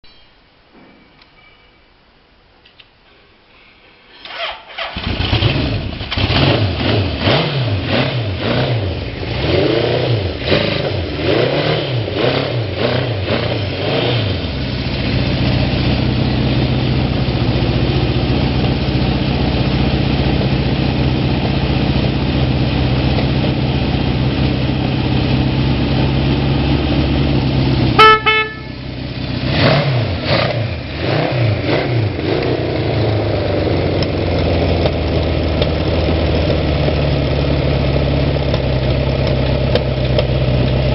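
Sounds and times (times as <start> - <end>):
motorcycle engine revving and idling: 4.3 - 40.9
horn beep: 28.0 - 28.8.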